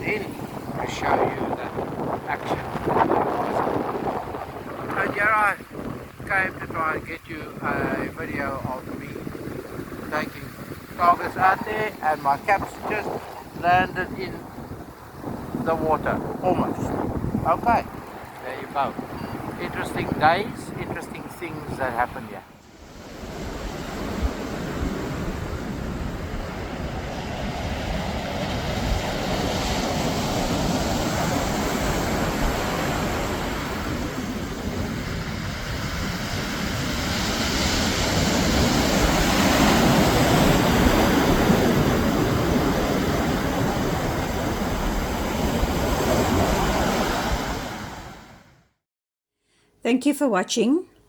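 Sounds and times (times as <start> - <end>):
wind buffeting microphone: 0.0 - 48.3
sea waves washing onto beach: 0.0 - 48.4.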